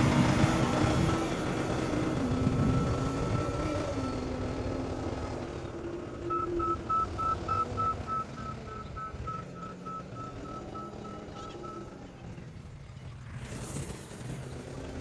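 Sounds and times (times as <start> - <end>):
heavy vehicle engine running: 0.0 - 15.0
reversing alarm beeping: 2.4 - 4.7, 6.2 - 12.0.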